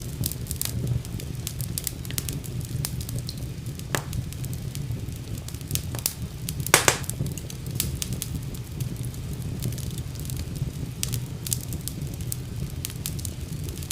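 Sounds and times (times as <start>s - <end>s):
wood fire crackling: 0.0s - 13.9s
fire pops and snaps: 0.2s - 13.9s.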